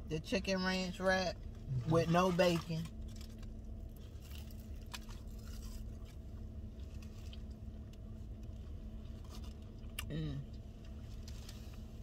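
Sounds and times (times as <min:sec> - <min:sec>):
low hum inside a car: 0:00.0 - 0:12.0
small clicks and crinkles: 0:02.4 - 0:10.0, 0:10.7 - 0:12.0
person chewing food: 0:02.9 - 0:11.9.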